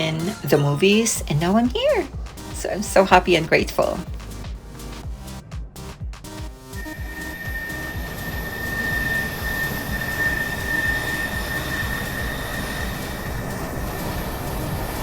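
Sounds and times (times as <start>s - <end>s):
jet aircraft flying overhead: 6.8s - 15.0s.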